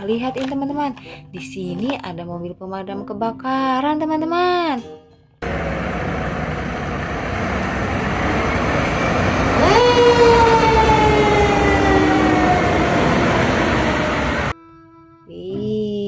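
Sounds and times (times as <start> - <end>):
rumbling engine: 5.4 - 14.5
siren wail: 5.6 - 14.5.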